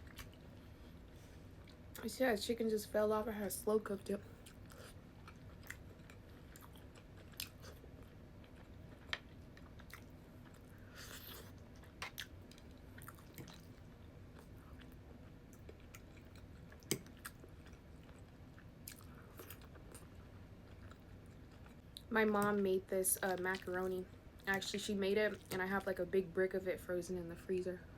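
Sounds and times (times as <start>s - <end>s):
person chewing food: 4.3s - 22.1s.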